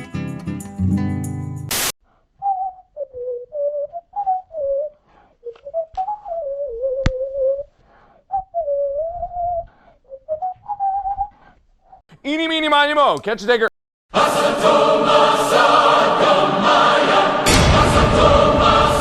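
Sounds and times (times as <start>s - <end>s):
person whistling a tune: 2.4s - 7.7s, 8.3s - 11.4s.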